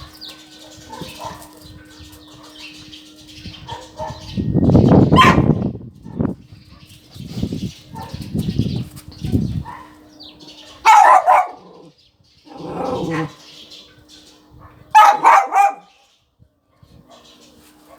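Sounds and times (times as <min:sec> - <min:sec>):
dog barking: 0:00.0 - 0:01.7, 0:03.6 - 0:04.4, 0:05.2 - 0:06.2, 0:07.9 - 0:08.2, 0:09.6 - 0:10.0, 0:10.7 - 0:11.9, 0:14.6 - 0:16.0, 0:16.8 - 0:17.9.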